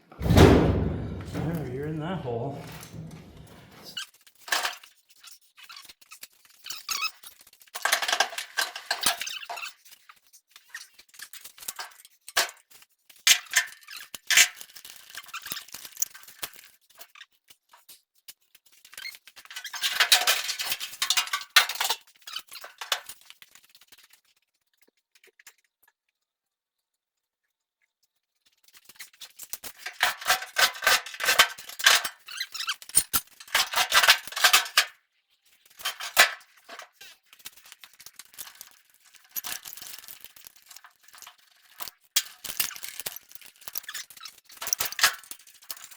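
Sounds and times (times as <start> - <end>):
metal clinking and rattling: 0.2 - 3.9, 35.8 - 45.9.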